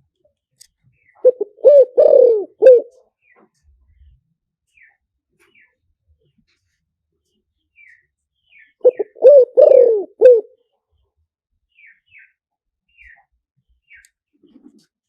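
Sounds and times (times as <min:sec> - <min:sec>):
small bird chirping: 0:00.8 - 0:06.4, 0:07.3 - 0:11.0, 0:11.7 - 0:14.7
dove cooing: 0:01.2 - 0:03.0, 0:08.8 - 0:10.6.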